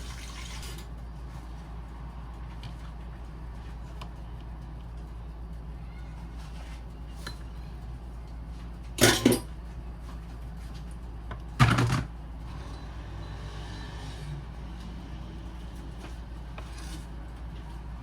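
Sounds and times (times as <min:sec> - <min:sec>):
household clatters: 0:09.0 - 0:09.5.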